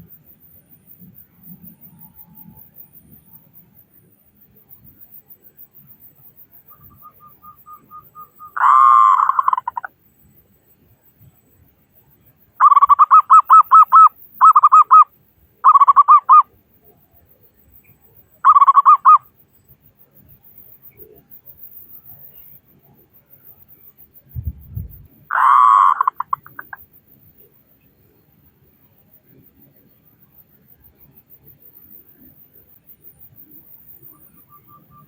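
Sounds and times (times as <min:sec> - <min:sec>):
dove cooing: 0:07.6 - 0:09.9, 0:25.3 - 0:26.8.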